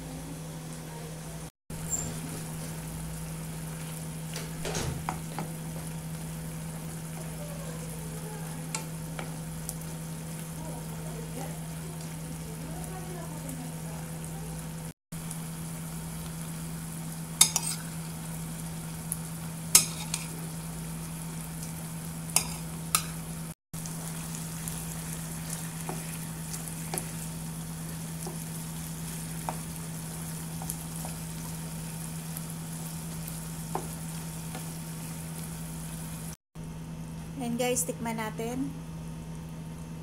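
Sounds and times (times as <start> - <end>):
food sizzling in a frying pan: 0.3 - 36.4
spatula stirring in pan: 17.4 - 18.0, 19.7 - 20.4, 22.4 - 23.1, 24.0 - 32.2.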